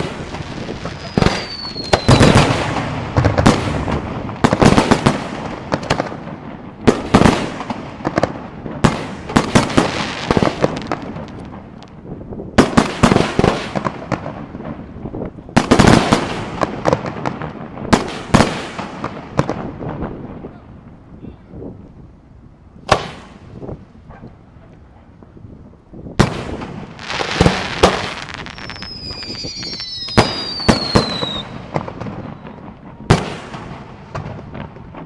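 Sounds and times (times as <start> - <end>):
falling firework whistle: 0.0 - 2.7, 27.0 - 31.6
fireworks bangs: 0.0 - 20.6, 22.8 - 24.3, 26.1 - 35.0.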